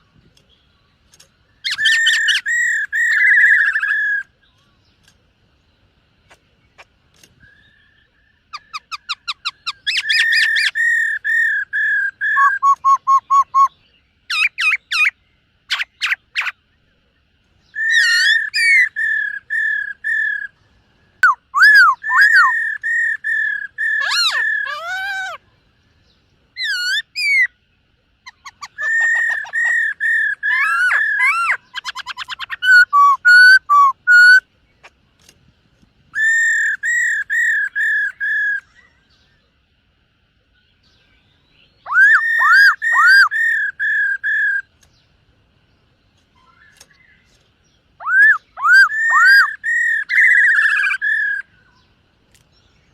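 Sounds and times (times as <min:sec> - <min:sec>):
bird singing whistled phrases: 0:01.6 - 0:04.7, 0:07.4 - 0:16.6, 0:17.6 - 0:20.6, 0:21.2 - 0:25.4, 0:26.6 - 0:27.6, 0:28.2 - 0:34.5, 0:36.1 - 0:39.2, 0:40.9 - 0:44.7, 0:48.0 - 0:51.9.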